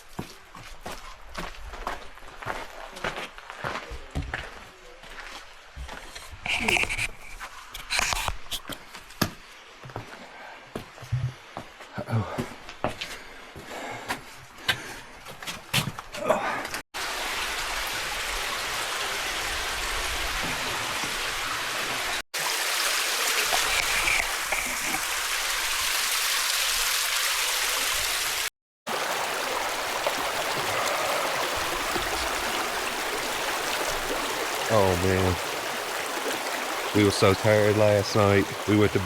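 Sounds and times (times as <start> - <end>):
creek water rushing: 17.0 - 39.0.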